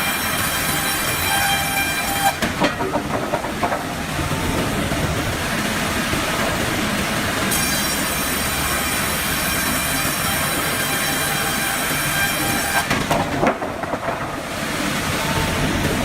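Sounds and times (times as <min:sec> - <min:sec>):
sawmill machinery running: 0:00.0 - 0:16.0
clanks and knocks: 0:01.3 - 0:05.4, 0:12.1 - 0:14.7
high whine: 0:13.2 - 0:16.0.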